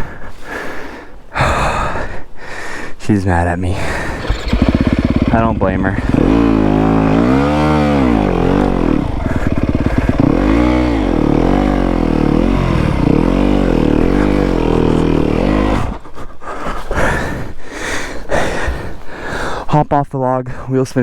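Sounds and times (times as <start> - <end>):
dirt bike engine revving: 3.8 - 16.0.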